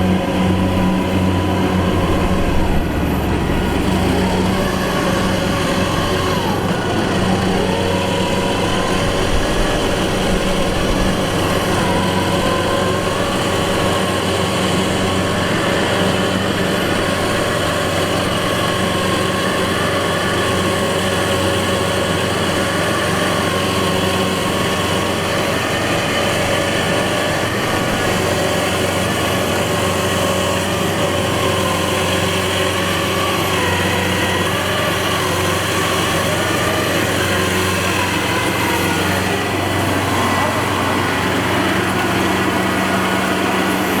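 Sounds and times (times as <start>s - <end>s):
harvester engine running: 0.0s - 44.0s.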